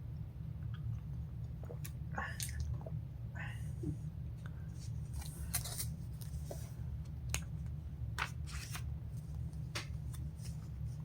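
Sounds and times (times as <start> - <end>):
low electrical hum: 0.0 - 11.0
paper pages rustling: 8.2 - 11.0.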